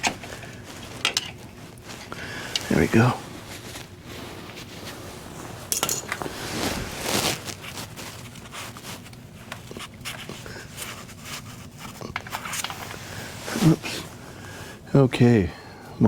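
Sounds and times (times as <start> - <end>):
metal parts clinking and scraping: 5.7 - 6.3.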